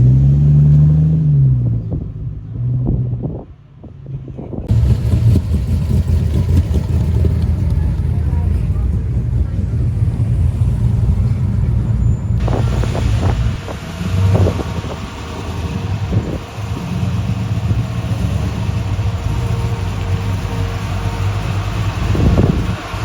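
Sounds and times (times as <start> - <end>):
car engine running: 4.7 - 23.0
wind on microphone: 12.4 - 18.1, 21.9 - 23.0.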